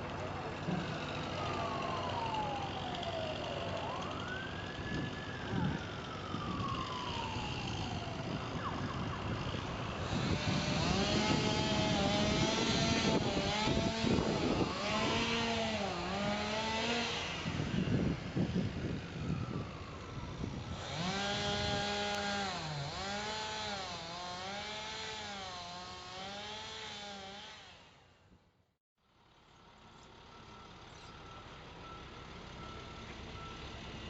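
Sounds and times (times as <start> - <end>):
emergency siren wailing: 0.2 - 23.1.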